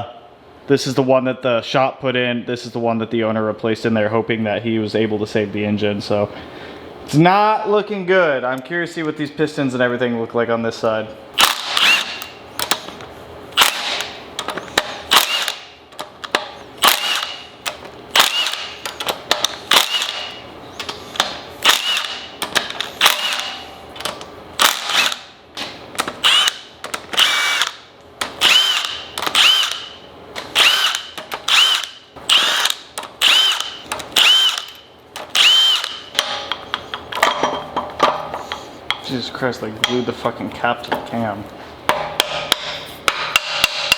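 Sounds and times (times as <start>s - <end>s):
cordless power tool whining: 11.4s - 12.9s, 13.6s - 15.7s, 16.8s - 17.4s, 18.2s - 19.0s, 19.7s - 21.0s, 21.6s - 23.6s, 24.6s - 25.3s, 26.1s - 36.1s.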